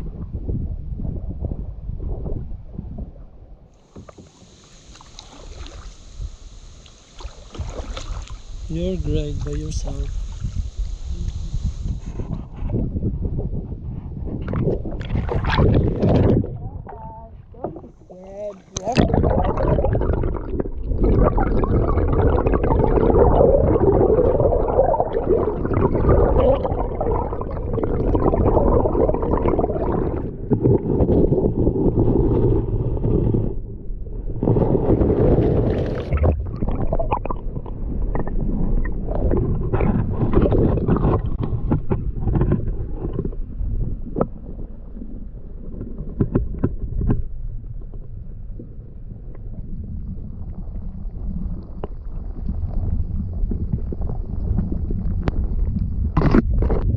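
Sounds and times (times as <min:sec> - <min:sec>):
muffled underwater river gurgling: 0:00.0 - 0:56.9.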